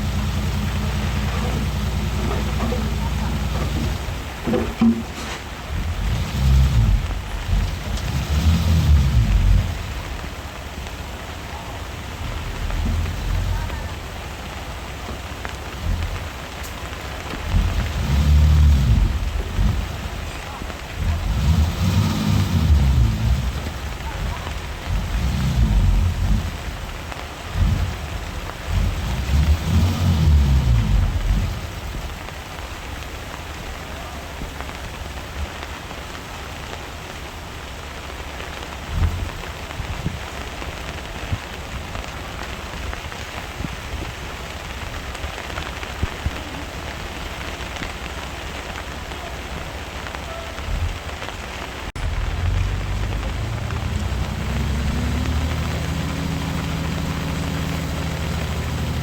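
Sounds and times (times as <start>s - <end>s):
low thuds: 0.0s - 11.2s, 12.0s - 33.0s
diesel engine rumbling: 0.0s - 59.0s
steady hiss: 0.0s - 59.0s.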